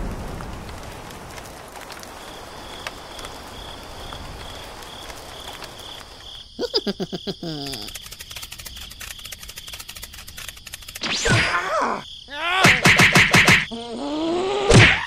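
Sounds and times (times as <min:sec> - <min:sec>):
soft steady rain: 0:00.0 - 0:10.9
insects clicking rapidly: 0:01.3 - 0:13.9
crickets chirping: 0:01.6 - 0:15.0.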